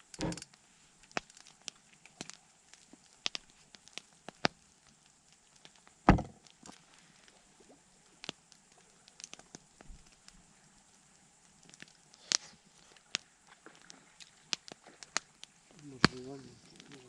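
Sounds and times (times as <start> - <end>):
campfire crackling and popping: 0.0 - 17.0
heavy knock: 6.1 - 6.4.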